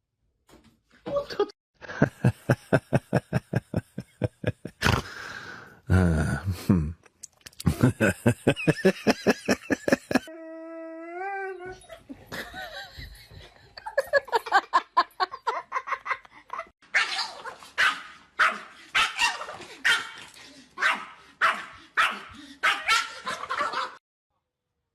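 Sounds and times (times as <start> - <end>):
dog barking: 16.9 - 20.2, 20.8 - 24.0
dog yipping: 16.9 - 20.2, 20.8 - 23.9.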